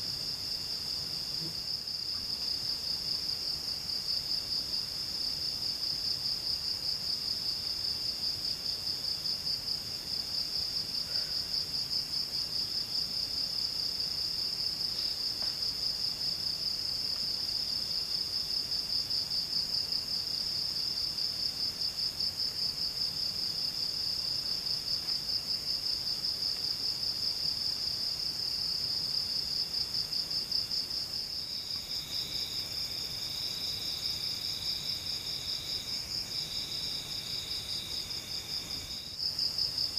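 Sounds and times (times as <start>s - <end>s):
lower insect call: 0.0s - 39.9s
lower insect trill: 0.0s - 39.9s
high pulsing insect trill: 26.9s - 39.9s.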